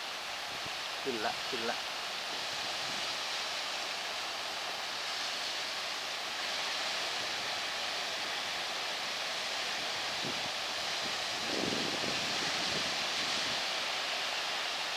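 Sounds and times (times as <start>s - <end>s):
wind: 0.0s - 14.9s.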